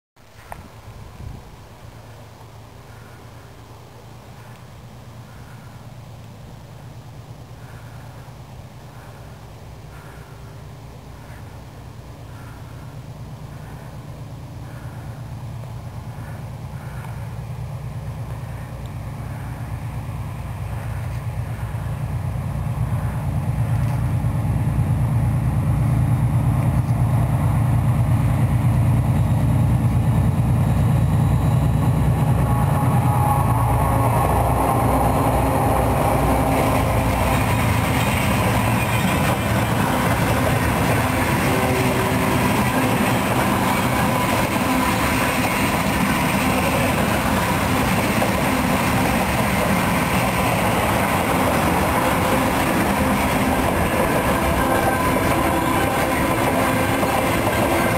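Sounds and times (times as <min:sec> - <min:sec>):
diesel locomotive engine: 0:00.2 - 0:57.9
freight wagons rolling on rails: 0:32.0 - 0:57.9.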